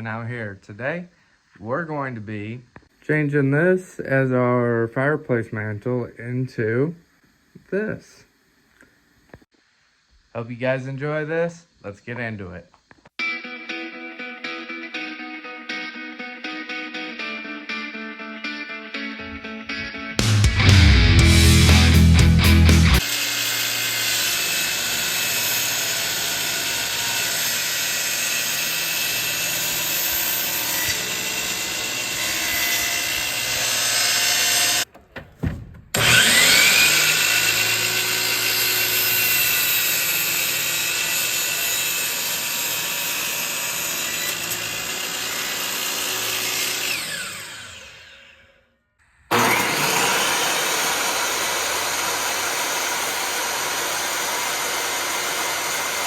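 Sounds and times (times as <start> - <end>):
electric power saw cutting wood: 20.7 - 34.9, 35.9 - 48.6, 49.3 - 56.0.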